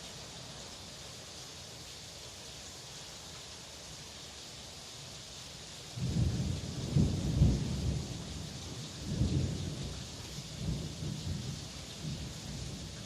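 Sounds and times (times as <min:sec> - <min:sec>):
heavy rain: 0:00.0 - 0:13.0
thunder rumbling: 0:06.0 - 0:10.0.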